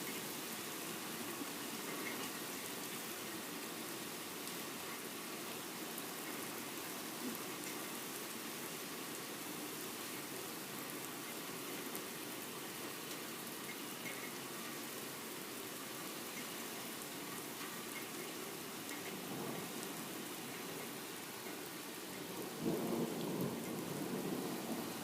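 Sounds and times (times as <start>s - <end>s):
steady rain: 0.0s - 25.0s
thunder rumbling: 22.2s - 25.0s.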